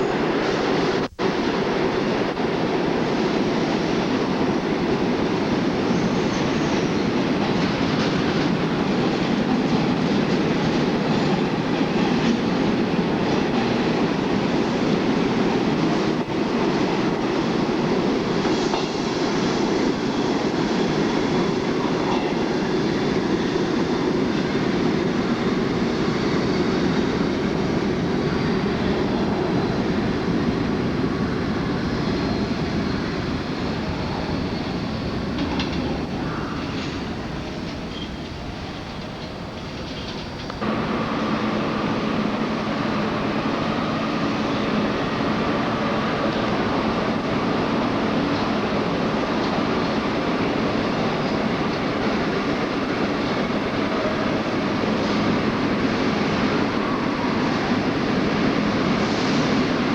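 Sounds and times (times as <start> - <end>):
train wheels clattering on rails: 0.0 - 59.9
faint high wheel squeal: 31.2 - 40.6.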